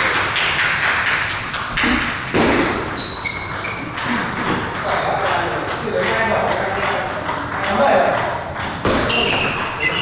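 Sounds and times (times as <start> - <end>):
table tennis ball knocking: 5.6 - 10.0.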